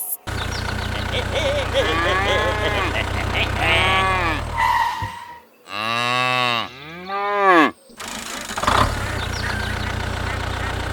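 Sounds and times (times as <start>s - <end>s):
small engine idling: 0.3s - 4.6s, 8.0s - 10.9s
cow mooing: 1.3s - 4.6s, 5.6s - 7.8s.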